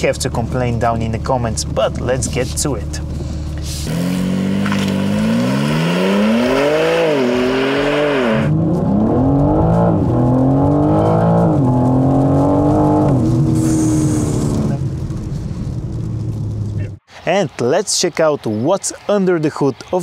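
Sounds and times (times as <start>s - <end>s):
car engine accelerating with upshifts: 2.0s - 17.0s.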